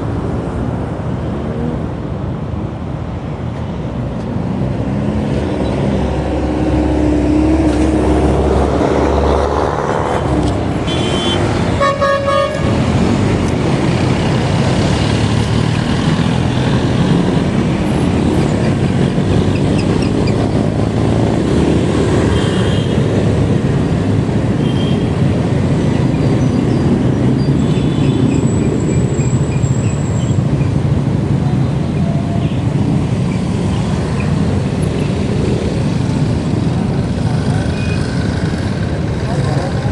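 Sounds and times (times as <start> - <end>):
road traffic noise: 0.0 - 39.9
vehicle horn honking: 10.9 - 12.7.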